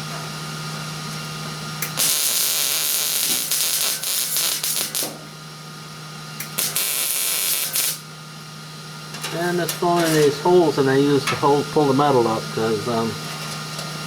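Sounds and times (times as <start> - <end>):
steady low hum: 1.0 - 14.0
welder arc crackling and hissing: 1.8 - 5.4, 6.4 - 8.1.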